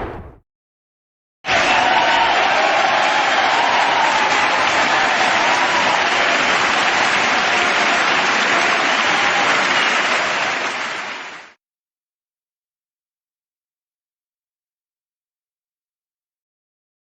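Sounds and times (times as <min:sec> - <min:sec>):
crowd applauding: 0:01.5 - 0:11.6.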